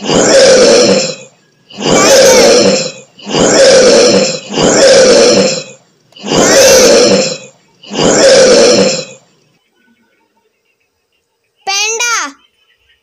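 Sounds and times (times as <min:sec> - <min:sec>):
big cat roaring: 0:00.0 - 0:09.2.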